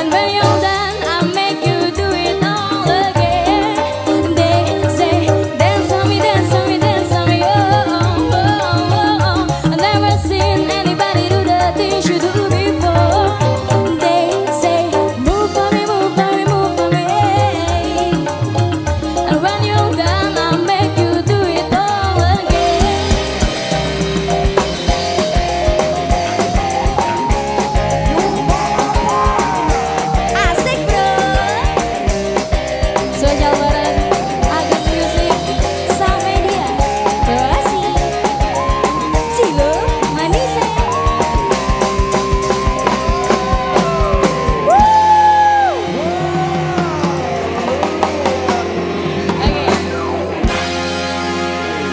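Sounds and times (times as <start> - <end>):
band music: 0.0 - 51.9
bass: 0.0 - 51.9
sustained melody line: 0.0 - 51.9
steady drum beat: 21.7 - 51.2.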